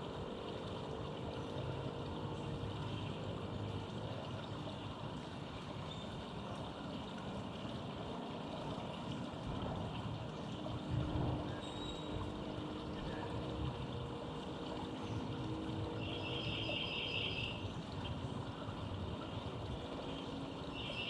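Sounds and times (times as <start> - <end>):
urban traffic noise: 0.0 - 21.0
vehicle engine hum: 0.0 - 21.0.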